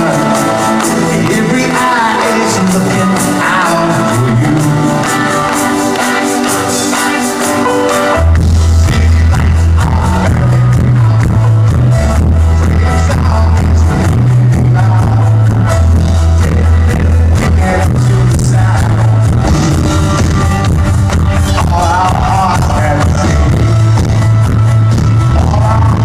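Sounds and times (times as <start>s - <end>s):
heavy held bass notes: 0.0s - 26.0s
loud live band music: 0.0s - 26.0s
steady drum hits: 19.4s - 21.9s.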